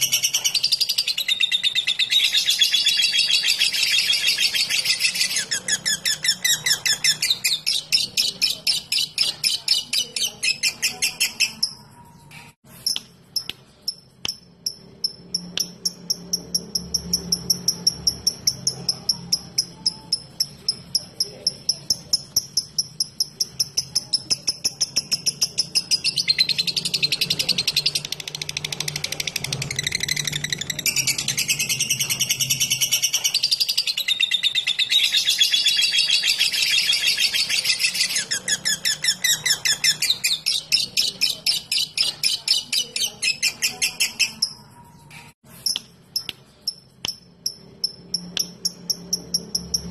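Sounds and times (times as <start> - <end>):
lovebird chattering trill: 0.0 - 11.9, 12.7 - 44.8
bird ticking calls: 45.6 - 49.9.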